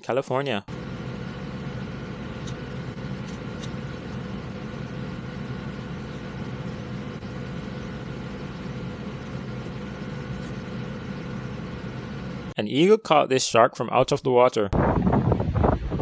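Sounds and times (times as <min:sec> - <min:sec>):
steady machine hum: 0:00.7 - 0:12.6.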